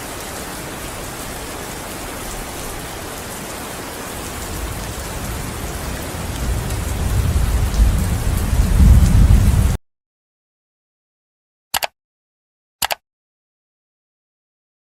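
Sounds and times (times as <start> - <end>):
steady rain hissing: 0.0 - 9.8
thunder rumbling: 4.3 - 9.8.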